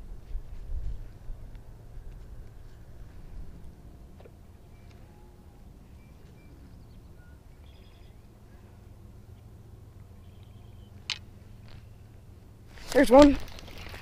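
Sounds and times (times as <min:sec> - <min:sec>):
wind rumble on microphone: 0:00.0 - 0:04.2
faint high bird chirps: 0:04.6 - 0:08.9, 0:10.1 - 0:11.1.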